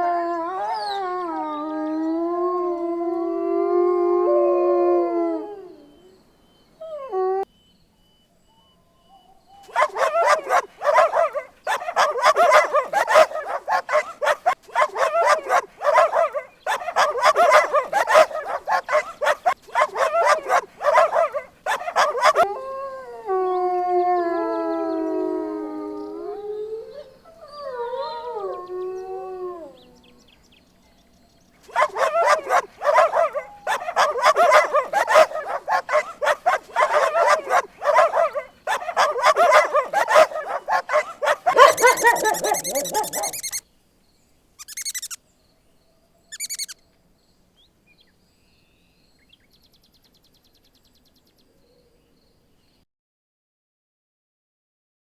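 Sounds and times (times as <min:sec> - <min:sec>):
dog yapping: 0:09.7 - 0:22.5, 0:31.7 - 0:43.6, 0:44.6 - 0:45.2, 0:46.4 - 0:46.8
dog howling whine: 0:09.8 - 0:30.1, 0:31.8 - 0:43.6.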